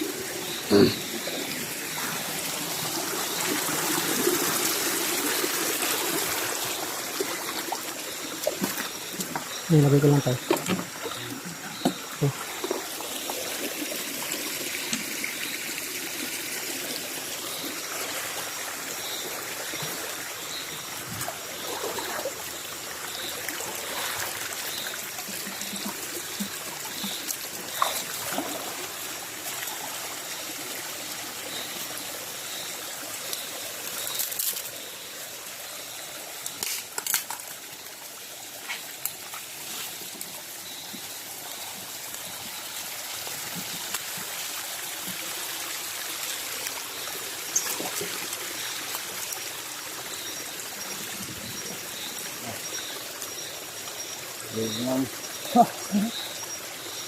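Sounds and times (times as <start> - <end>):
stream trickling over rocks: 0.0 - 57.0.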